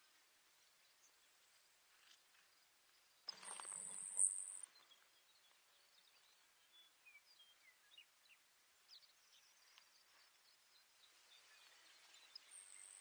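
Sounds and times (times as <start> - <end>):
faint short bird chirps: 3.2 - 8.1, 11.3 - 13.0
sparrow song high thin trill: 3.3 - 4.7.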